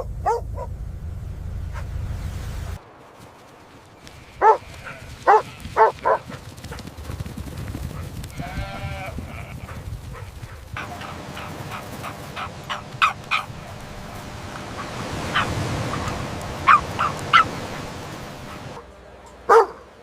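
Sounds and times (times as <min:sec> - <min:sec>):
puppy yapping: 0:00.0 - 0:00.7, 0:04.4 - 0:06.3, 0:10.8 - 0:18.8, 0:19.5 - 0:19.8.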